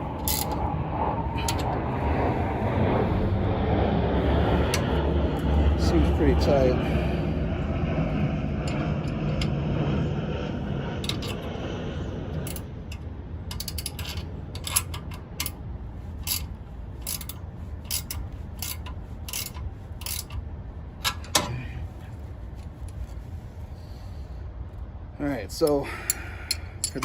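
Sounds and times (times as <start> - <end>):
low rumble: 0.0 - 27.0
ratchet wrench clicking: 0.2 - 0.6, 12.5 - 15.6, 16.2 - 20.4.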